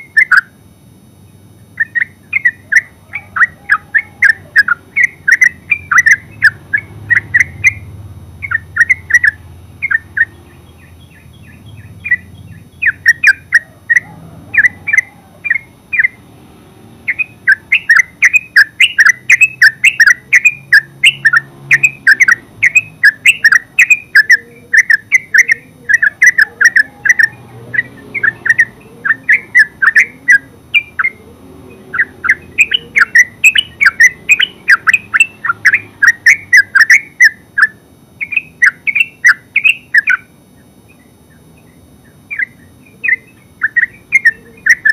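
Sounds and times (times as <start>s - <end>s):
bird chirping rapidly: 0.0s - 16.3s, 17.0s - 44.9s.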